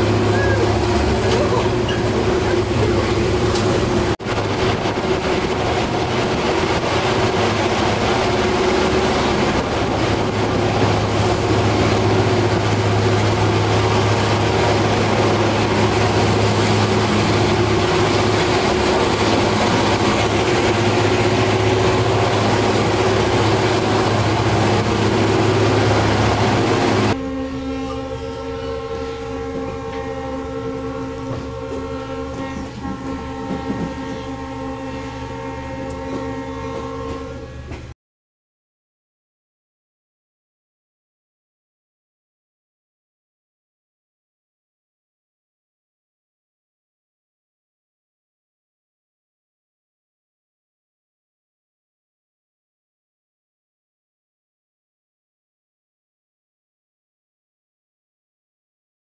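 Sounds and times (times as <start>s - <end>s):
passenger train rumble: 0.0s - 38.0s.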